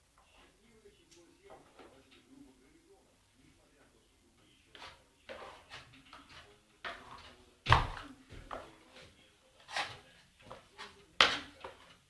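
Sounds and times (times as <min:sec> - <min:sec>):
scraping: 0:04.8 - 0:12.0.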